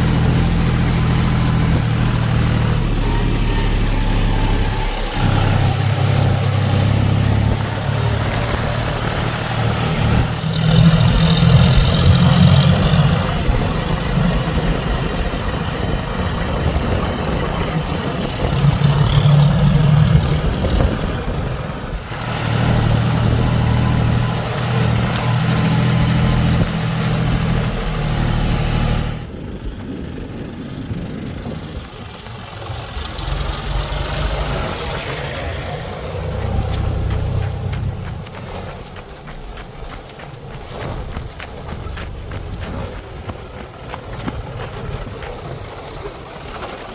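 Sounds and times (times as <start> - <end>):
backhoe diesel engine revving: 0.0 - 29.3, 30.8 - 46.9.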